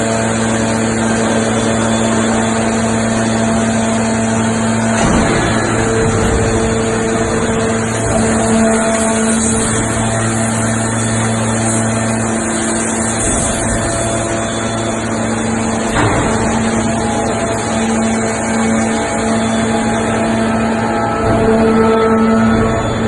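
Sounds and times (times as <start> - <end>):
hydraulic pump hum: 0.0 - 23.0.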